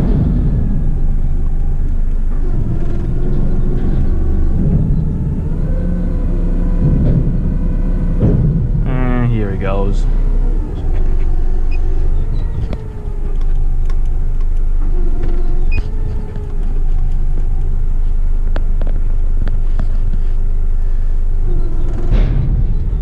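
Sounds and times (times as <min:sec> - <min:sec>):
diesel truck engine rumbling: 0:00.0 - 0:23.0
hydraulic bin lift: 0:00.0 - 0:23.0.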